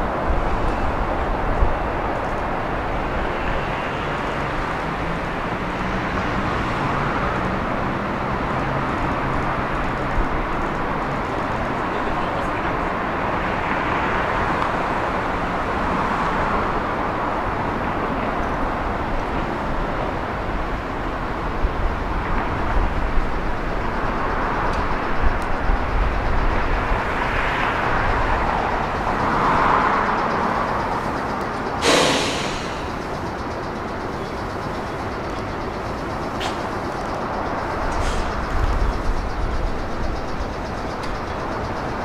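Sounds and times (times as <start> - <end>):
electric train rumbling: 14.2 - 42.0
short sharp hiss: 31.8 - 33.1.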